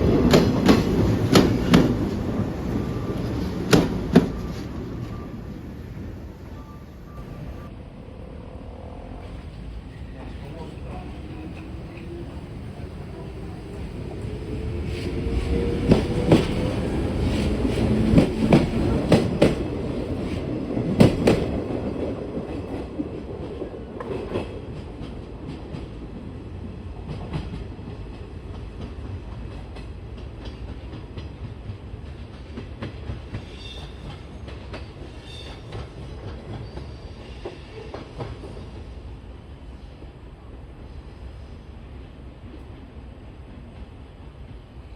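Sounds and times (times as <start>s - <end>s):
train rumble: 0.0s - 44.9s
train wheels clicking over joints: 14.9s - 26.0s.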